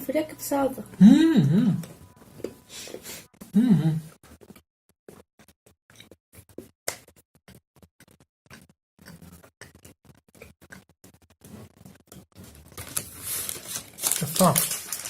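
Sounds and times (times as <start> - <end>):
food packaging clicks and crackles: 11.8 - 15.0.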